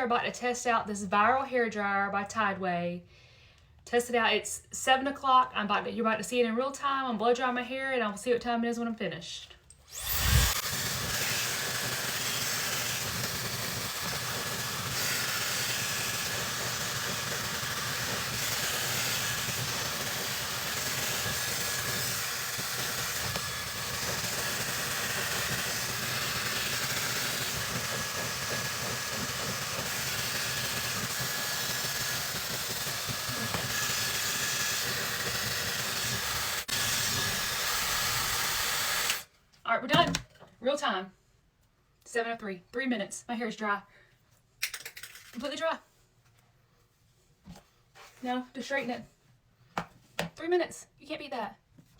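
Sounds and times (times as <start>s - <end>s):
hair dryer running: 9.9s - 39.3s.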